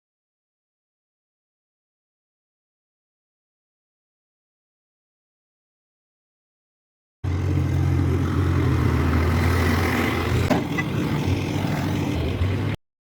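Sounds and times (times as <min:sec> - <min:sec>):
engine running steadily: 0:07.2 - 0:12.8.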